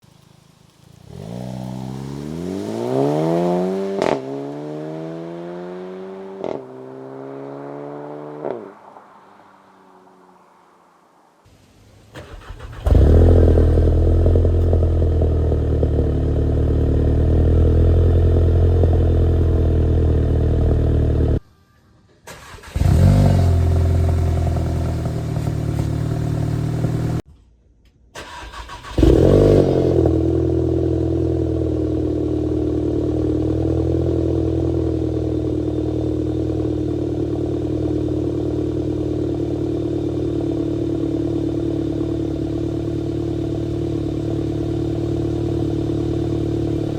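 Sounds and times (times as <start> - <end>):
car engine starting and idling: 11.9 - 21.4, 22.2 - 27.2, 28.0 - 46.9.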